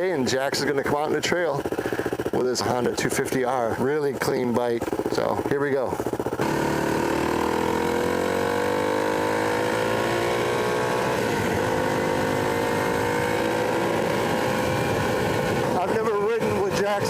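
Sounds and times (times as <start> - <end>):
dirt bike engine pulling away: 0.0 - 17.0.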